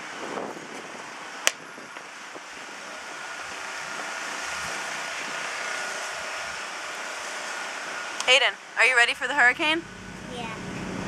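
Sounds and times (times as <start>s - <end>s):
wind rushing over microphone: 0.0s - 8.3s.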